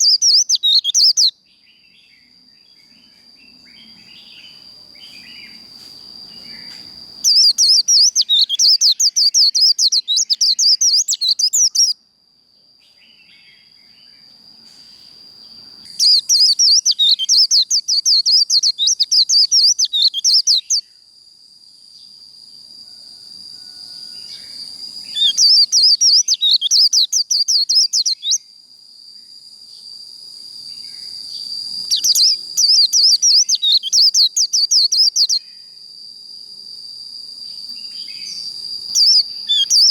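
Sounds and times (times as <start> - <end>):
bird twittering: 0.0 - 1.3, 6.4 - 12.0, 15.9 - 20.8, 25.1 - 28.4, 31.8 - 35.4, 38.2 - 39.9.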